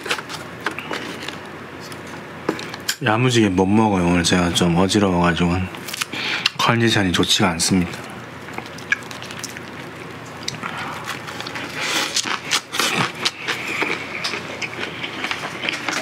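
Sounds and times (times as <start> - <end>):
crunching lettuce leaves: 7.5 - 16.0
wet mouth sounds: 8.5 - 15.1.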